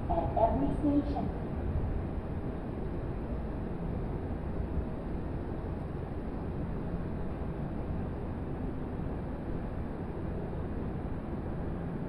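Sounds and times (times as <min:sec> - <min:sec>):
distant train rumble: 0:00.0 - 0:08.4.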